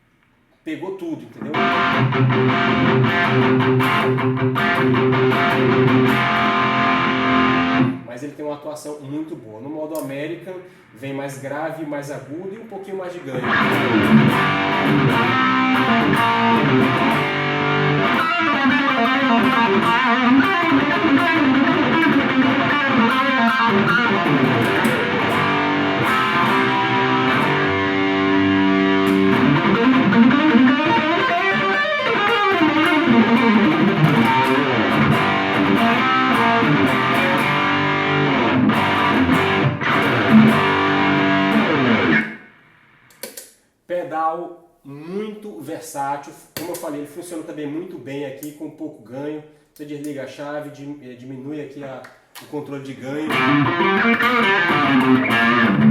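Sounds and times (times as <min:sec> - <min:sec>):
distorted electric guitar riff: 0:01.4 - 0:08.1, 0:13.4 - 0:43.1, 0:53.3 - 0:55.9.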